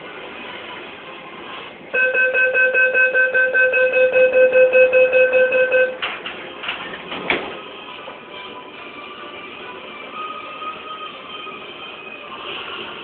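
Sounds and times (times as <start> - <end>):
rapid electronic beeping: 2.0 - 6.0.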